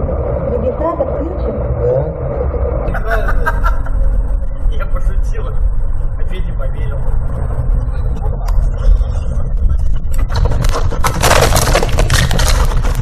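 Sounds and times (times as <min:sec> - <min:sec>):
car road rumble inside cabin: 0:00.0 - 0:13.0
car crash crunching and scraping: 0:10.1 - 0:13.0.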